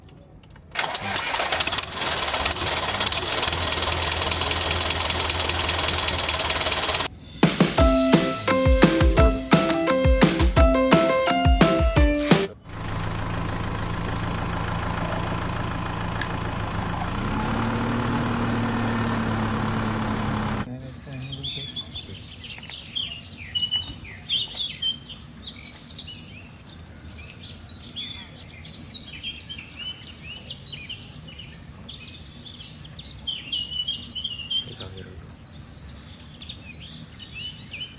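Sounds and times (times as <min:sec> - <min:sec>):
tractor engine running: 0:00.7 - 0:20.7
small birds chirping: 0:08.0 - 0:37.9
low steady rumble: 0:12.6 - 0:20.7
clicks: 0:13.5 - 0:20.7.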